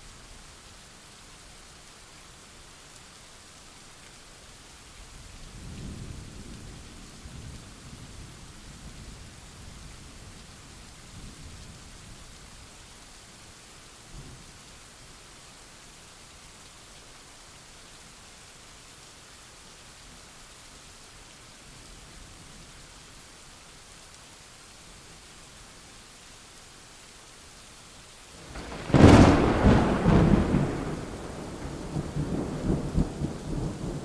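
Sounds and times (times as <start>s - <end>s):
steady rain hiss: 0.0s - 34.0s
thunder rumbling: 28.4s - 34.0s.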